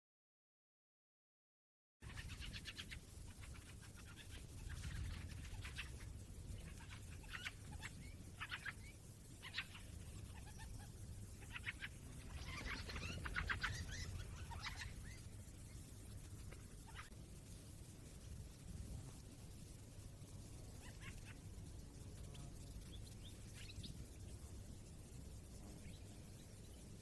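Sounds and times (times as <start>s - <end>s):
goldfinch twittering: 2.0s - 17.1s.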